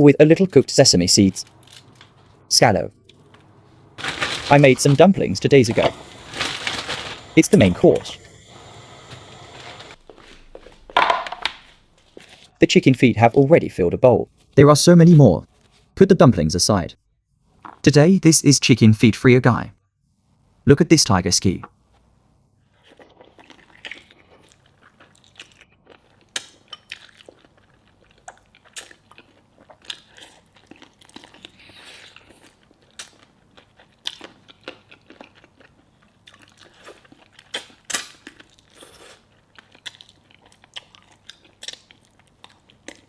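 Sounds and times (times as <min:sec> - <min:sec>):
chewing with wet smacks: 0:22.9 - 0:43.0.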